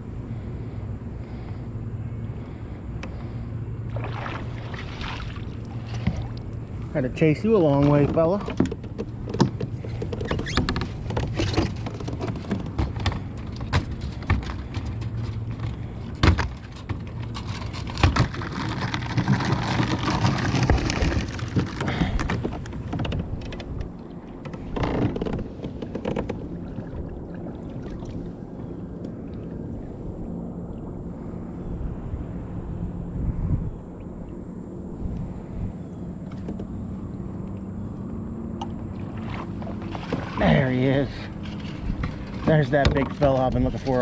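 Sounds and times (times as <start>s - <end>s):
low motor hum: 0.0s - 44.0s
gear knocking and clattering: 7.7s - 23.9s, 41.0s - 44.0s.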